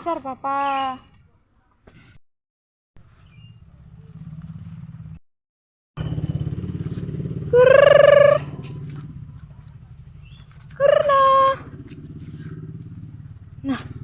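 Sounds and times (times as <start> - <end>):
loud steady tone: 6.0 - 8.6
engine running with rapid pulse: 6.0 - 14.0.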